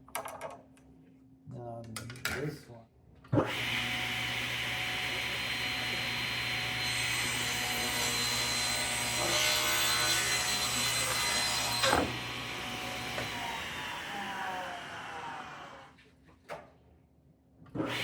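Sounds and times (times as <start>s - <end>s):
woodworking machine cutting wood: 3.5s - 15.9s.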